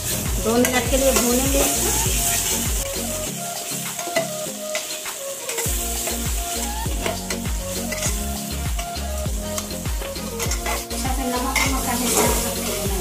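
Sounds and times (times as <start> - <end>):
onions and spices sizzling in oil: 0.0 - 13.0
metal ladle scraping and knocking pot: 10.4 - 12.6.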